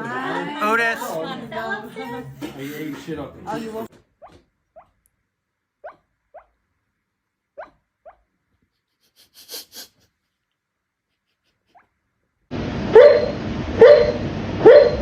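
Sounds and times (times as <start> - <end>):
dog yipping softly: 5.8 - 6.6, 7.6 - 8.2.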